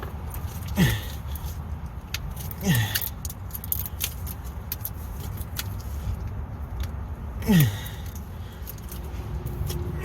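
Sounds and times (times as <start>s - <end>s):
person grunting: 0.8s - 1.1s, 2.6s - 3.0s, 7.4s - 8.0s.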